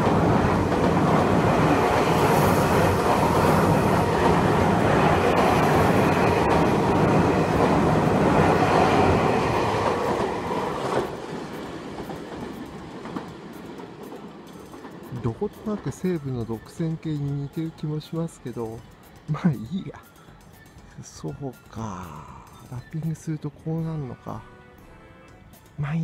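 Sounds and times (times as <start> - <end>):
train wheels rumbling on rail: 0.0 - 20.8.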